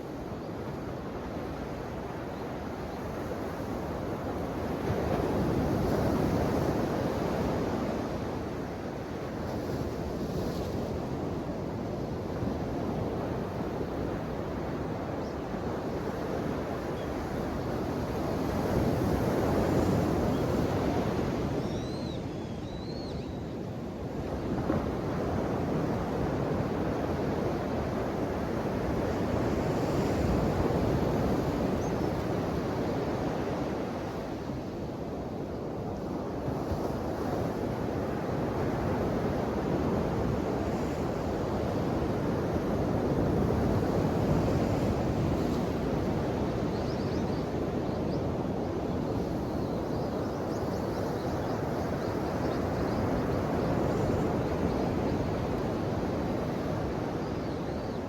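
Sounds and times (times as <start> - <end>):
ocean waves washing on shore: 23.6 - 58.0.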